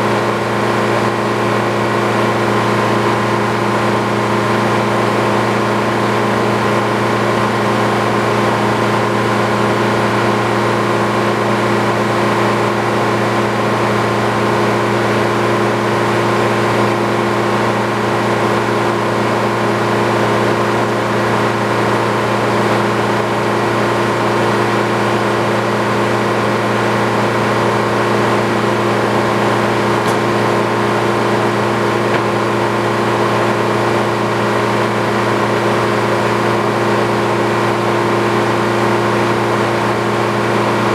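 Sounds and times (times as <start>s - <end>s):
machine motor humming: 28.0s - 34.3s.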